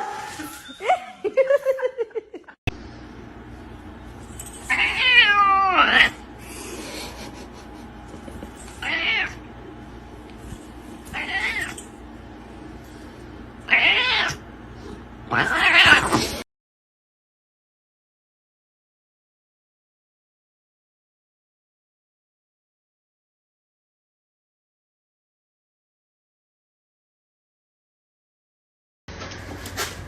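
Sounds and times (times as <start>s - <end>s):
cat meowing: 4.7s - 6.2s, 8.8s - 9.5s, 11.1s - 11.8s, 13.7s - 14.4s, 15.3s - 16.2s.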